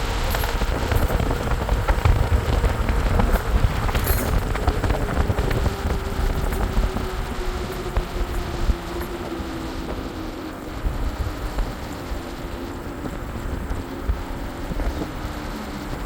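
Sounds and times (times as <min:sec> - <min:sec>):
road noise: 0:00.0 - 0:16.0
wind rumble and hiss: 0:00.0 - 0:16.0
small clicks and rattles: 0:00.1 - 0:10.3.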